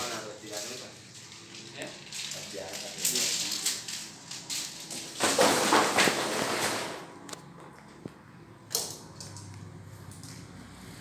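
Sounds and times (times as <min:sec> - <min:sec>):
packaging crackling rustle: 0:00.0 - 0:07.4.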